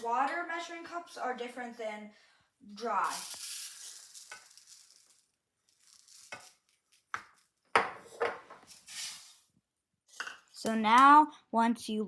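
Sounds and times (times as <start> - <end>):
brief hiss: 8.8 - 9.4.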